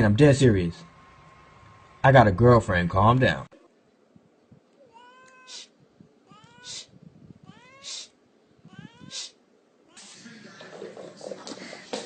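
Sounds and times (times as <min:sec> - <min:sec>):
cat meowing: 0:04.8 - 0:10.1.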